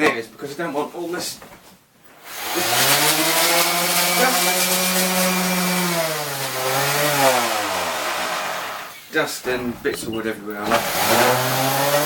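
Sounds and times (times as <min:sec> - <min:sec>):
electric drill boring into wood: 0:02.2 - 0:08.9, 0:10.7 - 0:12.0.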